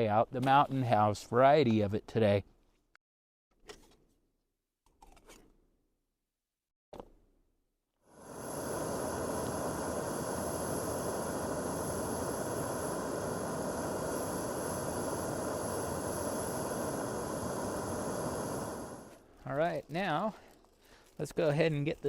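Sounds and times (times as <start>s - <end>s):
gas stove burner hissing: 8.1s - 19.6s.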